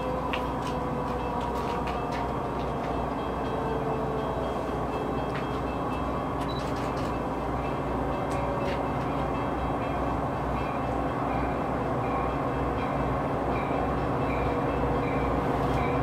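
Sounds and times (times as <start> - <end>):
diesel train rumbling: 0.0 - 16.0.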